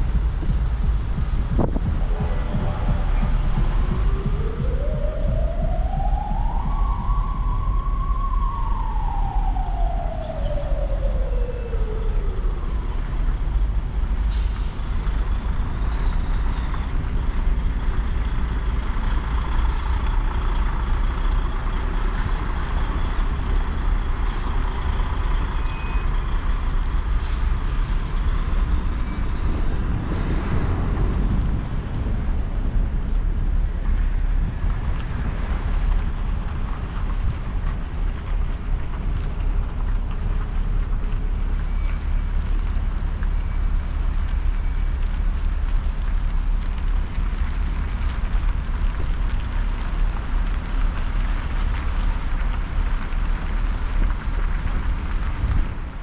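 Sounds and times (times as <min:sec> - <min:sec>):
street traffic rumble: 0:00.0 - 0:56.0
siren wailing: 0:01.6 - 0:13.2.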